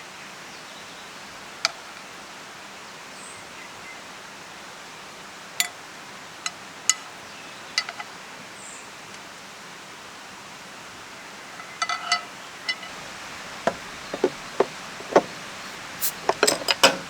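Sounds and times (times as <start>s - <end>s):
stream rushing: 12.4s - 17.0s.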